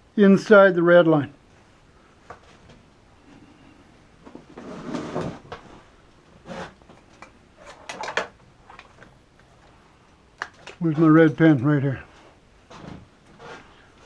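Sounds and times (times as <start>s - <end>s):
scraping rustle: 4.3s - 8.0s, 12.1s - 14.0s.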